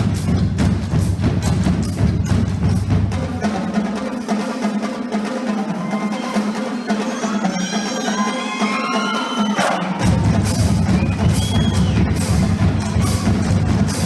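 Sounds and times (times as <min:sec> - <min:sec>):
bass drums: 0:00.0 - 0:03.5, 0:09.9 - 0:14.0
snare and tenor drums: 0:00.0 - 0:14.0.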